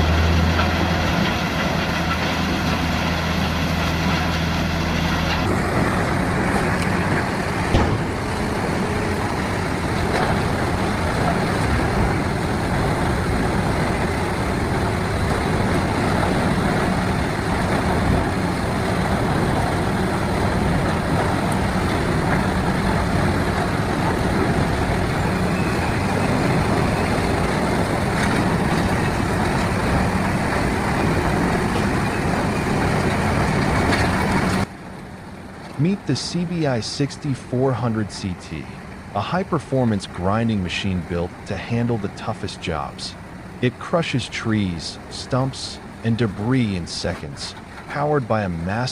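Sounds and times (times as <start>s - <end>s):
wood chipper churning: 0.0s - 34.6s.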